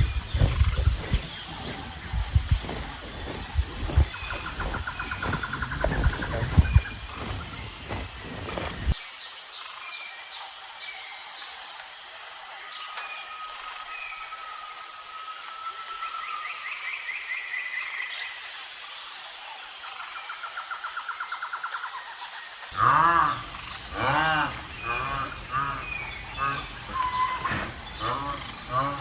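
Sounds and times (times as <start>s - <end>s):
birds chirping and trilling: 0.0s - 9.0s, 22.8s - 29.0s
high insect hum: 0.0s - 9.3s, 17.8s - 29.0s
squealing animal call: 22.8s - 29.0s.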